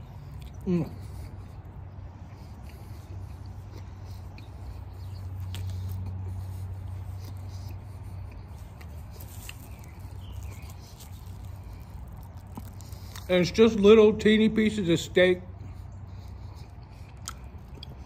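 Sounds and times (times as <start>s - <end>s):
chewing with wet clicks: 0.0s - 13.4s, 15.6s - 18.0s
food wrapper rustling: 8.6s - 13.3s.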